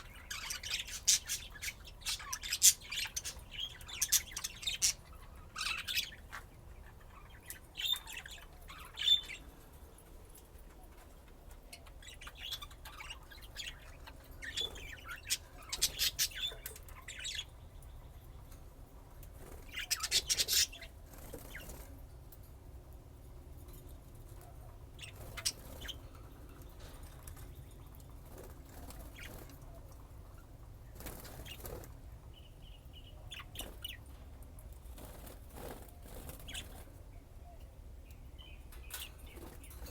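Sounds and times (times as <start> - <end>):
budgerigars chirping and chattering: 0.0 - 9.6, 11.5 - 18.5, 19.4 - 21.9, 24.9 - 34.1, 34.8 - 37.3.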